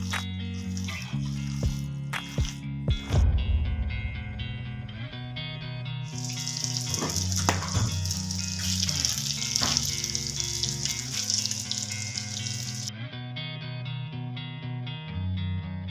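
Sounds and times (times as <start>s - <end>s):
food sizzling in hot oil: 0.0s - 2.6s, 6.1s - 12.9s
background music: 0.0s - 15.9s.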